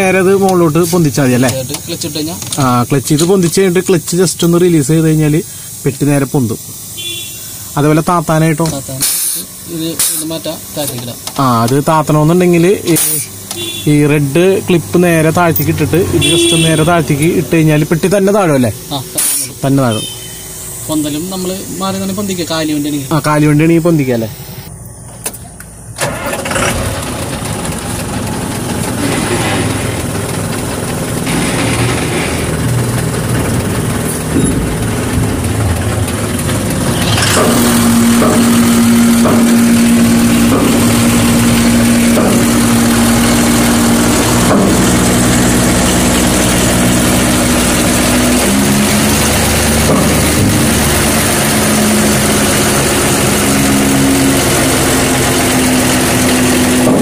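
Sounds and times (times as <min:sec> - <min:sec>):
diesel truck engine revving: 0:00.0 - 0:24.7, 0:25.9 - 0:57.0.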